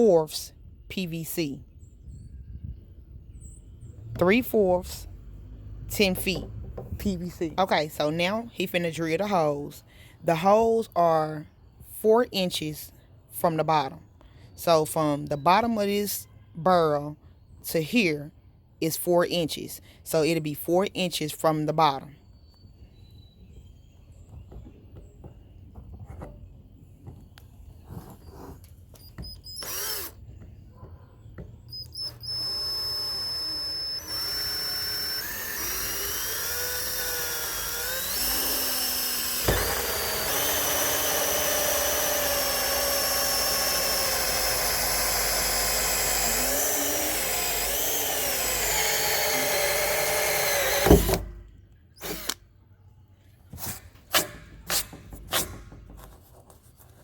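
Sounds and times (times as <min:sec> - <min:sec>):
power drill boring plastic: 0:29.0 - 0:30.3, 0:31.7 - 0:51.2, 0:52.0 - 0:52.4.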